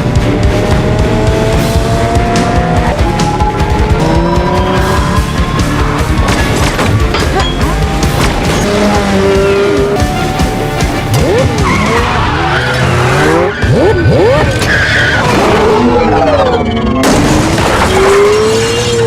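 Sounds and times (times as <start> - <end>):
sports car engine revving: 0.0 - 6.0, 8.4 - 14.6
motorcycle revving: 0.0 - 16.1
dramatic score music: 0.0 - 19.0.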